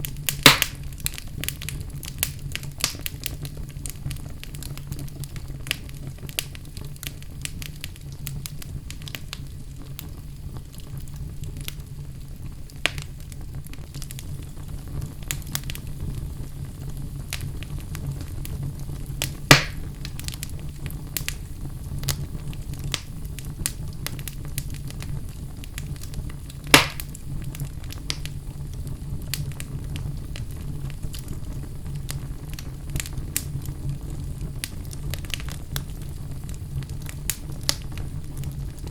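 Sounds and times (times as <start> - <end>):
fire flames rumbling: 0.0 - 38.9
loud fire pops: 0.0 - 38.9
small fire crackles: 0.0 - 38.9.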